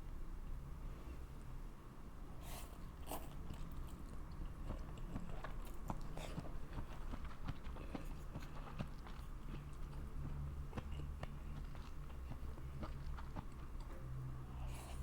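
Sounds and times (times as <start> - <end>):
low steady hum: 0.0 - 15.0
person chewing food: 3.0 - 15.0.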